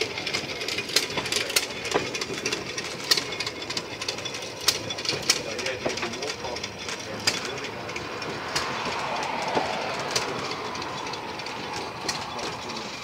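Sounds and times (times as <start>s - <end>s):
train wheels rumbling on rail: 0.0s - 13.0s
wheels clicking over rail joints: 0.0s - 13.0s.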